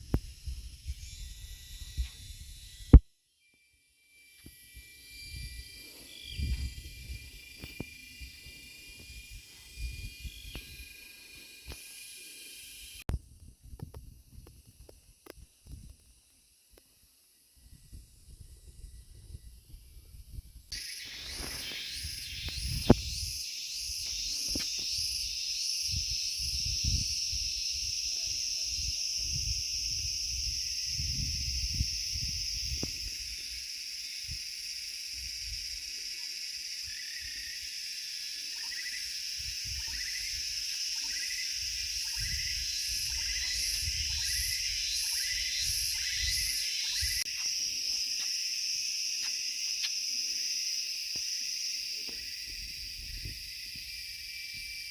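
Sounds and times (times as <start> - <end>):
insects buzzing: 0.0 - 54.9
pulsing insect chirps: 0.0 - 54.9
low repeating chirp: 0.2 - 13.0, 17.6 - 28.6, 29.3 - 48.8.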